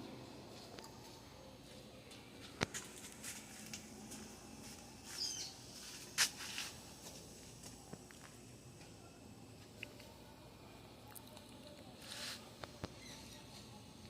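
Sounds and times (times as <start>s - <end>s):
bird chirp: 5.2s - 5.6s.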